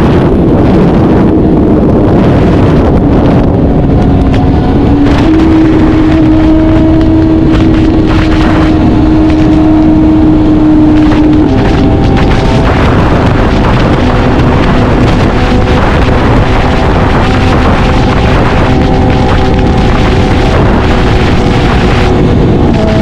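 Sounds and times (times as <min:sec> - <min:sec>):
motorcycle engine running: 0:00.0 - 0:23.0
wind noise on microphone: 0:00.0 - 0:23.0.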